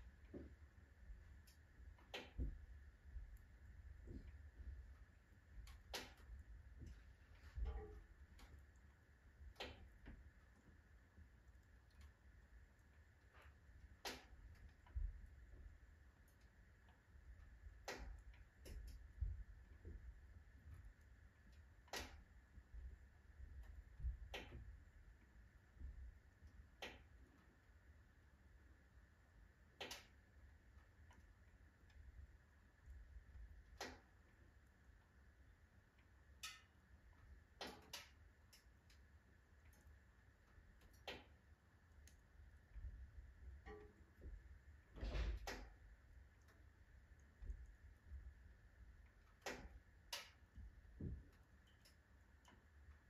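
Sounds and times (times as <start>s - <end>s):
faint low rumble: 0.0s - 37.6s
firewood crackling in a stove: 0.0s - 53.0s.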